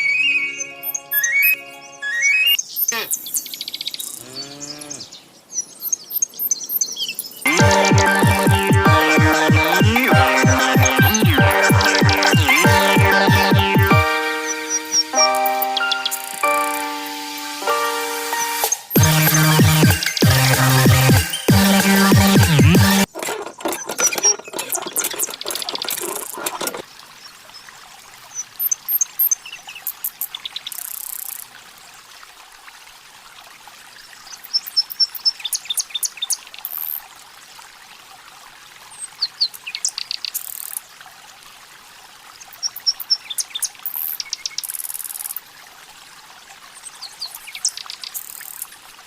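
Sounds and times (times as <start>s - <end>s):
birds chirping: 0.0s - 17.1s, 22.8s - 26.8s
water pouring and trickling: 5.4s - 49.0s.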